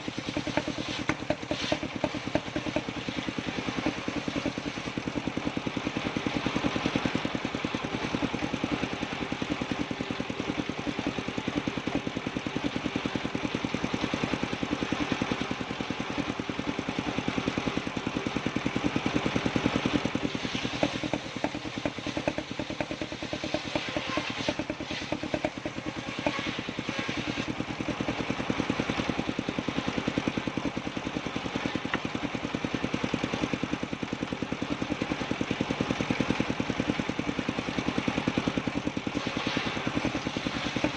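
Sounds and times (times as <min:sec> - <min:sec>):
hiss: 0:00.0 - 0:04.9, 0:19.6 - 0:27.8, 0:38.1 - 0:40.9
clatter: 0:00.0 - 0:40.9
sawmill engine running: 0:00.0 - 0:40.9.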